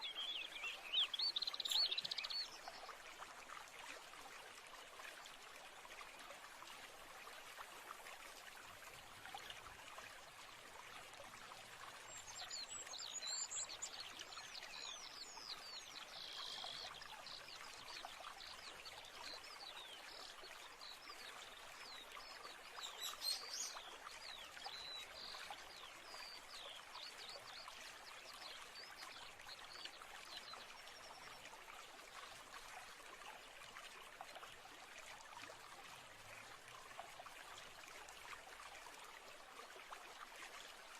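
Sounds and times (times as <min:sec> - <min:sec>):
small birds chirping: 0:00.0 - 0:02.7, 0:22.8 - 0:23.9
stream running: 0:00.0 - 0:40.9.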